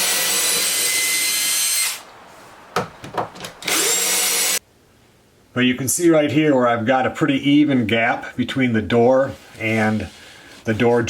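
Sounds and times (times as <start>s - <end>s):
power drill driving screws: 0.0s - 2.0s, 3.6s - 4.6s.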